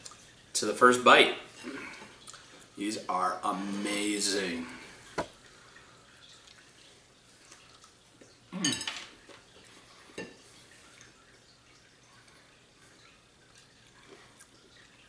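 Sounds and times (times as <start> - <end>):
tableware clinking: 8.6 - 9.2.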